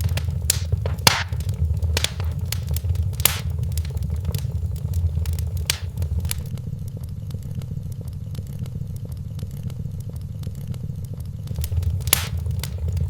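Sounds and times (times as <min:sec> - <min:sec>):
wood fire crackling and popping: 0:00.0 - 0:06.6, 0:11.5 - 0:13.0.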